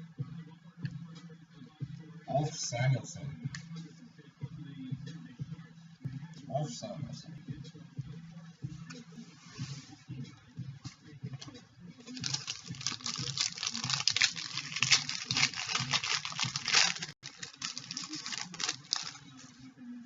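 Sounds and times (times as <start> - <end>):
wrapper crinkling and tearing: 12.1 - 19.4.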